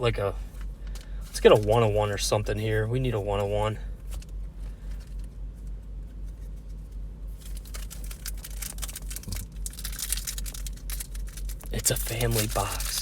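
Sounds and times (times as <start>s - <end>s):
steady low rumble: 0.0s - 13.0s
foil wrapper crinkling: 7.3s - 13.0s.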